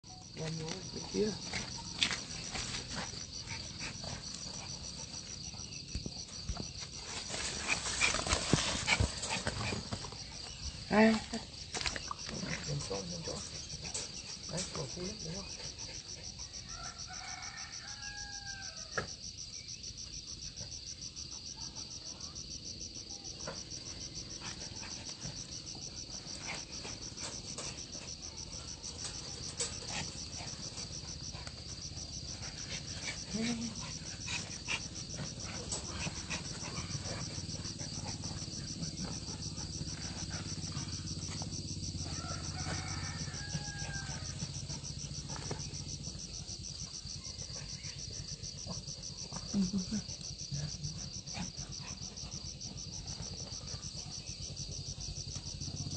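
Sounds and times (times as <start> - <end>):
insects chirring: 0.0 - 55.9.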